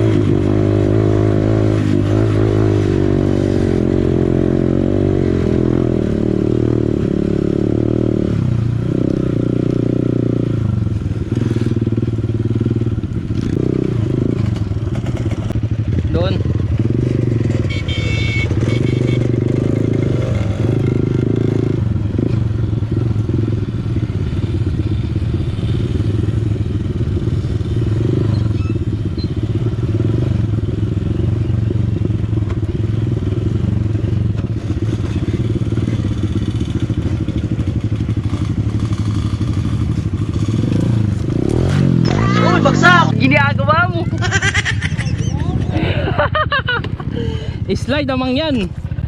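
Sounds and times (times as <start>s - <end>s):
dirt bike engine running: 0.0s - 49.0s.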